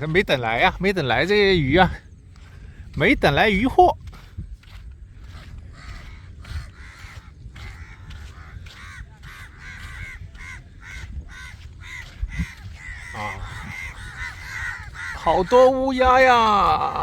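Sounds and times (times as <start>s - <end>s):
crows cawing: 5.2s - 17.0s.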